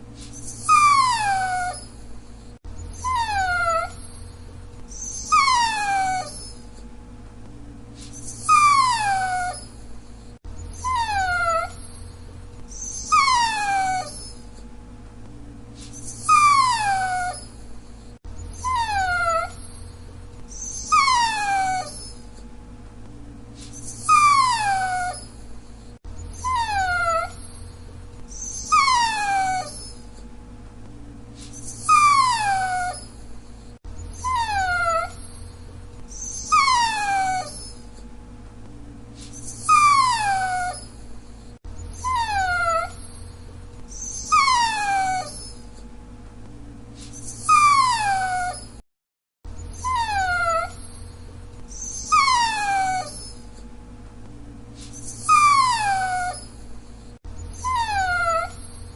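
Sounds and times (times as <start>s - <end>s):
dog whining: 0.2s - 6.9s, 8.0s - 14.7s, 15.8s - 22.5s, 23.6s - 30.3s, 31.4s - 38.1s, 39.2s - 45.9s, 47.0s - 48.8s, 49.5s - 53.7s, 54.8s - 58.9s.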